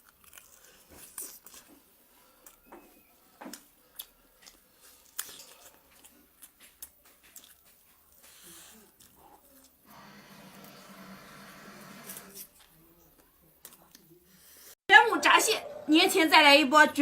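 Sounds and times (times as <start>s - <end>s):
chewing fried chicken: 0.0s - 9.8s, 12.3s - 14.7s.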